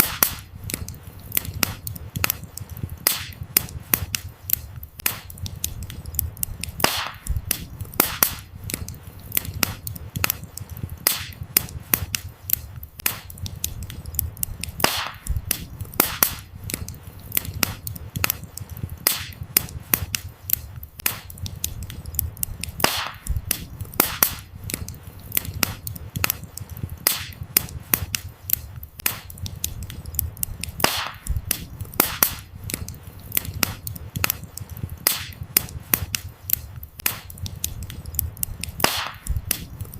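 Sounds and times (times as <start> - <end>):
firewood popping: 0.0 - 39.9
low rumble of flames: 0.0 - 39.9
wood fire crackling: 0.0 - 39.9.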